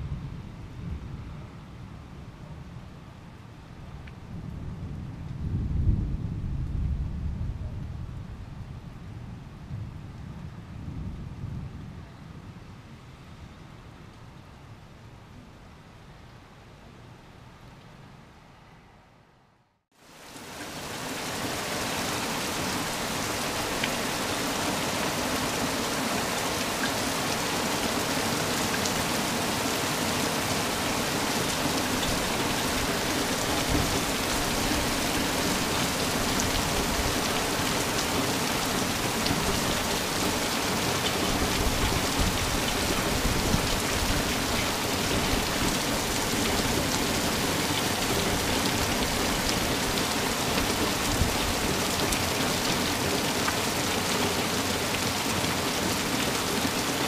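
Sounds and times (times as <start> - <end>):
heavy rain pouring: 20.0 - 57.0.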